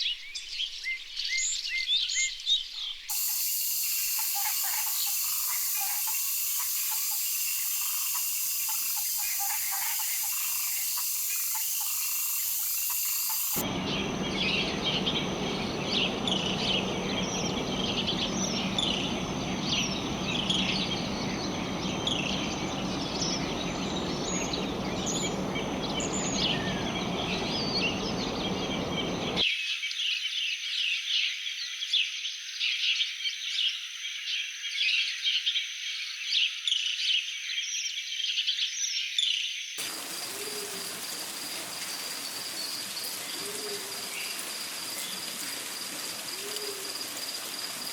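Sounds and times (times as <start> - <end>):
bird chirps: 1.2 - 29.4
frogs and insects calling: 3.1 - 29.4, 39.8 - 47.9
steady rushing noise: 3.1 - 29.4.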